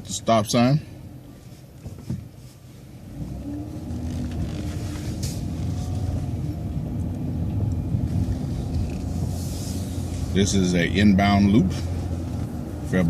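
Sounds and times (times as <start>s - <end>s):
bus engine pulling away: 2.8s - 13.0s.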